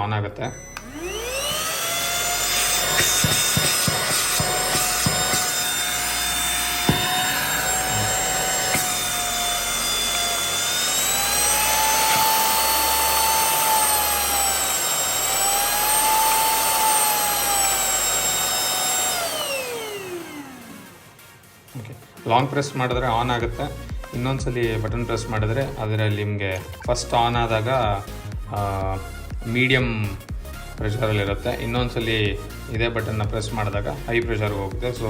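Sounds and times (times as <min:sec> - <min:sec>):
handheld vacuum motor whine: 0:00.4 - 0:21.4.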